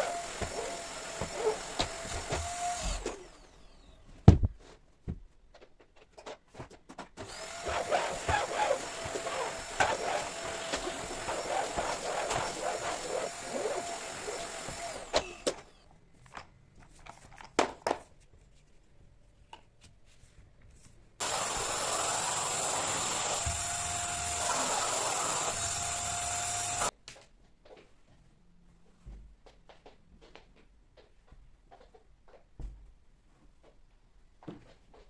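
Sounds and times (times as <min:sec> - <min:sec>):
vacuum cleaner whining: 0:00.0 - 0:04.1, 0:07.2 - 0:15.8, 0:21.2 - 0:26.9.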